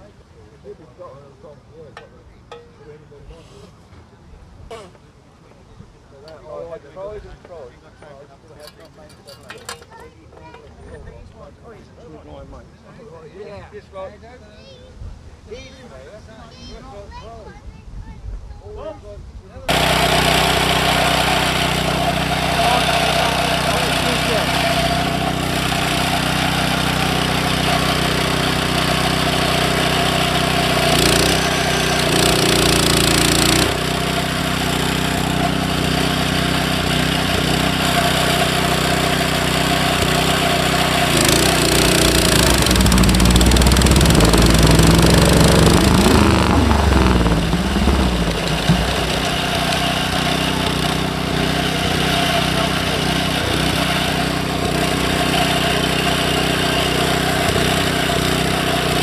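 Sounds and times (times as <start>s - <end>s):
motorcycle engine idling and revving: 19.7s - 59.0s.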